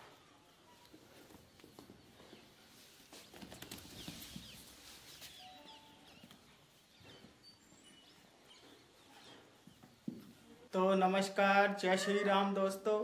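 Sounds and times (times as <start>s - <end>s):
small birds chirping: 0.1s - 11.2s.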